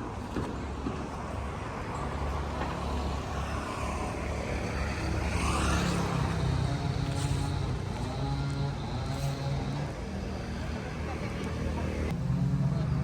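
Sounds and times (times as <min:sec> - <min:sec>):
engine running at low speed: 0:00.0 - 0:13.0.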